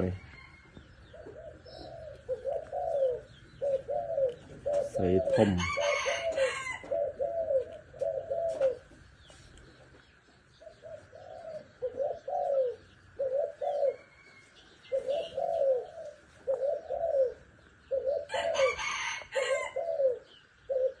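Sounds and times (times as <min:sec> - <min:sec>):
bird cooing: 0:00.0 - 0:09.3, 0:10.5 - 0:21.0.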